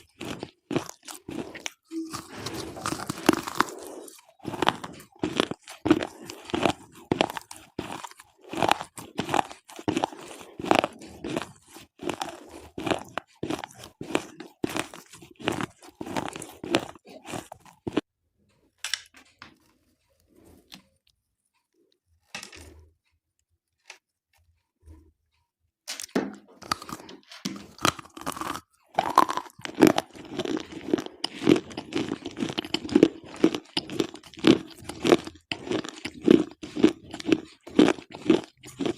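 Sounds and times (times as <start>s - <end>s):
slate pencils crunching: 0.0s - 18.1s, 26.6s - 38.9s.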